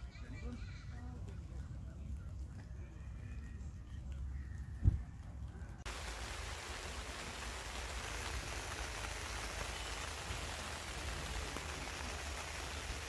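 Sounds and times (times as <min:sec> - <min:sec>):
heavy rain falling: 0:05.8 - 0:13.0.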